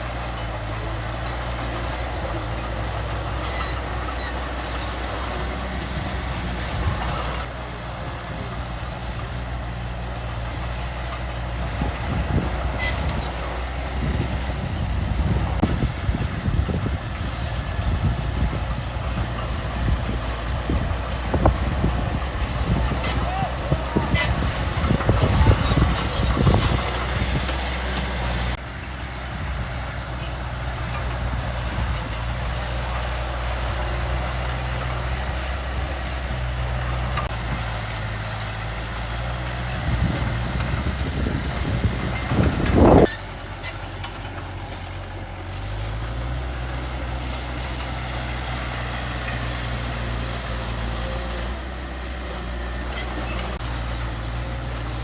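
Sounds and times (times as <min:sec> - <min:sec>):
diesel engine running: 0:00.0 - 0:55.0
rough engine bursts: 0:10.0 - 0:52.1.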